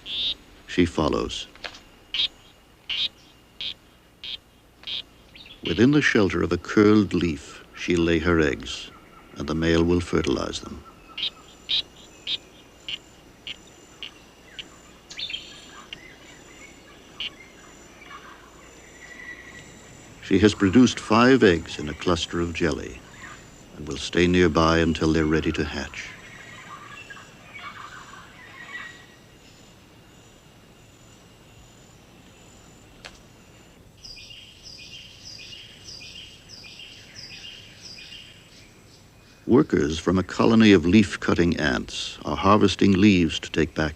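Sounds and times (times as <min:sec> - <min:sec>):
animal high chirping call: 0:00.0 - 0:00.4, 0:02.1 - 0:05.8, 0:10.8 - 0:19.8, 0:25.9 - 0:29.2
faint rainforest ambience: 0:00.0 - 0:43.9
frog chirping: 0:00.0 - 0:43.9
high insect whine: 0:00.0 - 0:43.9.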